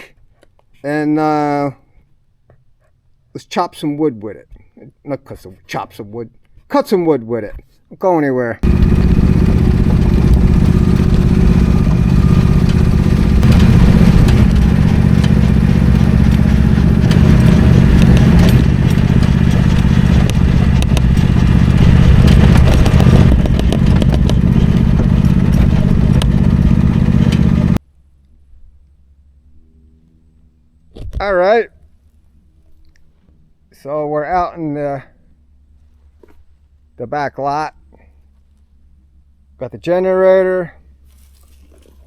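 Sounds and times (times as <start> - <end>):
engine droning loudly: 8.6 - 27.8.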